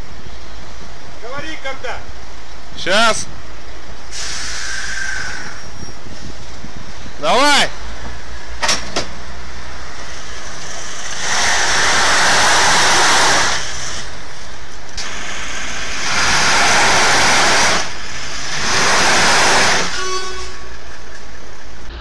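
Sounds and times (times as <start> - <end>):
engine low hum: 0.0 - 22.0
engine revving hard: 10.9 - 14.1, 15.1 - 20.0.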